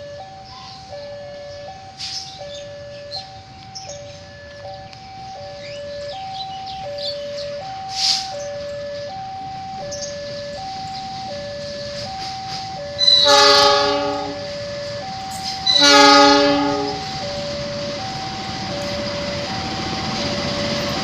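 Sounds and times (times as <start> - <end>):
level crossing two-note alarm: 0.0 - 19.7
locomotive horn blasts: 13.0 - 14.6, 15.3 - 17.2.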